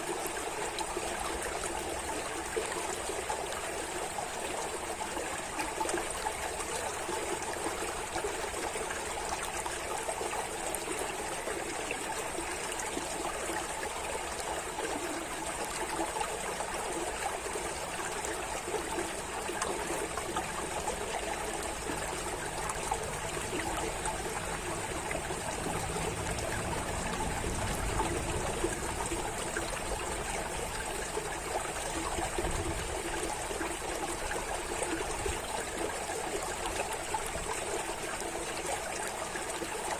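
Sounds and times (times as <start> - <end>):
water running and trickling: 0.0 - 39.9.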